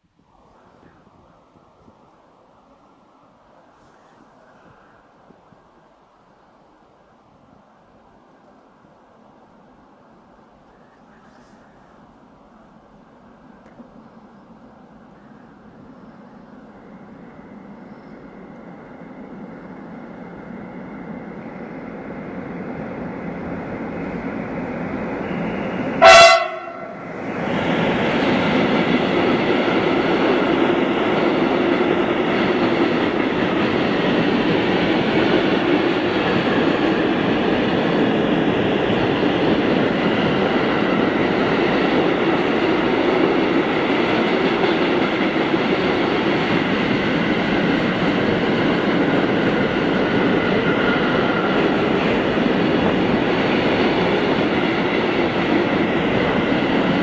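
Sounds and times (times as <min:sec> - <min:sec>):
train horn blast: 0:25.2 - 0:27.0
wheels rolling on rails: 0:27.0 - 0:57.0.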